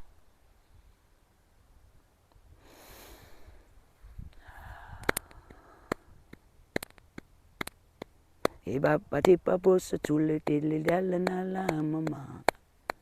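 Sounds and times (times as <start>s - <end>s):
person breathing in through nose: 2.6s - 6.3s
sharp clicks: 5.0s - 8.6s.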